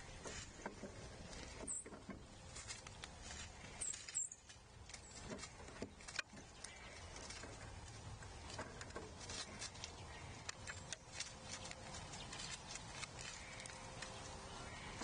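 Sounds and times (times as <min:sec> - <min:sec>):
animals feeding clicks and taps: 0:00.0 - 0:15.0
low outdoor background: 0:00.0 - 0:15.0.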